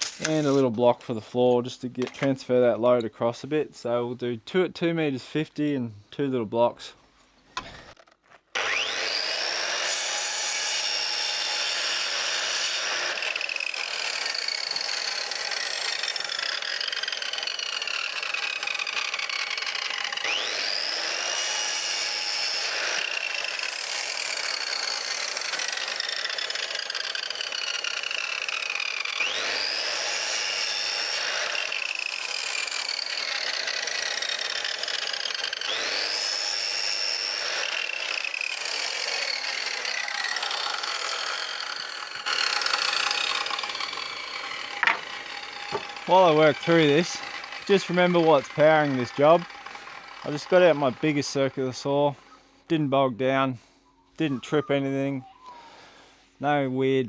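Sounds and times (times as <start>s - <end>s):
circular saw cutting wood: 0.0s - 3.1s, 7.5s - 52.8s.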